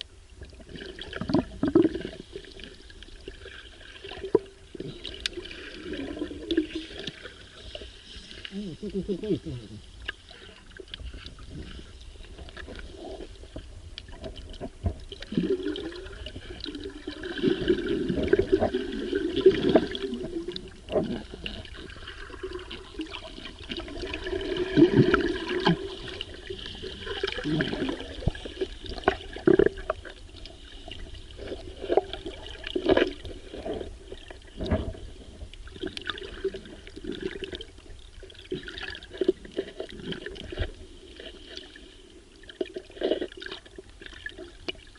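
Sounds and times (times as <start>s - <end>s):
water gurgling and sloshing: 0.0s - 44.9s.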